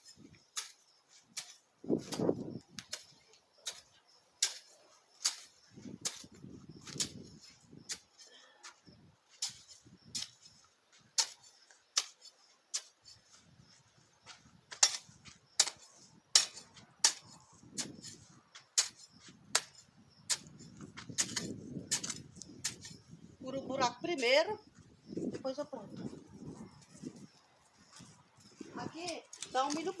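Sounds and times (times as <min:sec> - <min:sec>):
digging tool striking soil: 0:00.0 - 0:13.4, 0:14.3 - 0:23.0
earth scraping and rustling: 0:00.0 - 0:24.4.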